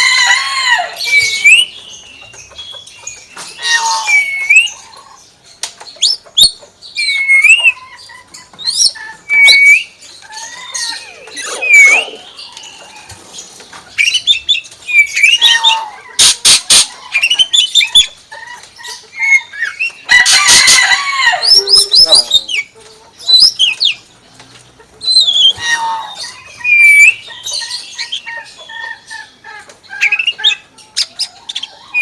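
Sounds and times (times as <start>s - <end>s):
myna whistling and calling: 1.0s - 5.0s, 6.0s - 7.9s, 8.6s - 12.9s, 25.0s - 28.4s
harsh bird squawks: 10.4s - 12.4s, 25.1s - 27.2s.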